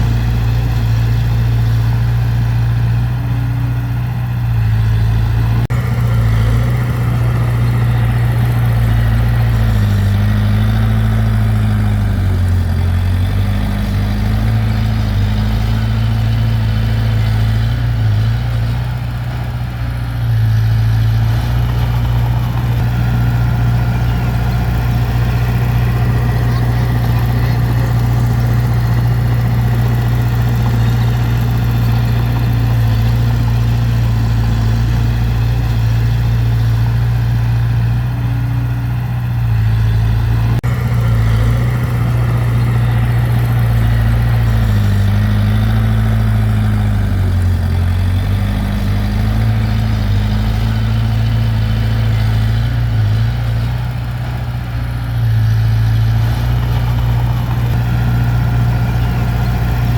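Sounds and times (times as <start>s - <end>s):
heavy machinery diesel engine running: 0.0s - 59.9s.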